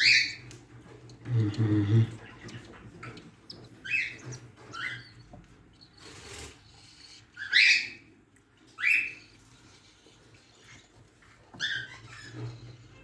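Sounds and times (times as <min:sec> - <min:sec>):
budgerigar chirping: 0:00.0 - 0:00.5, 0:02.2 - 0:08.0.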